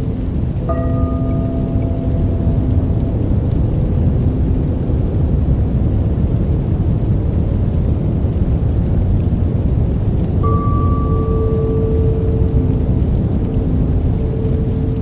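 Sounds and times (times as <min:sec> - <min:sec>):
deep white noise hiss: 0:00.0 - 0:15.0
soft two-pitch tone: 0:00.2 - 0:04.5, 0:10.4 - 0:15.0.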